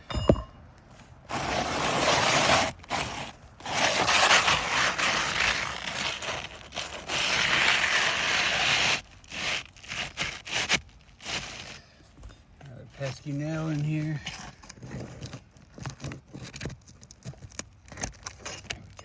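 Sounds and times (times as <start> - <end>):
roof shingle scraping and tearing: 1.2 - 12.0, 12.8 - 19.0.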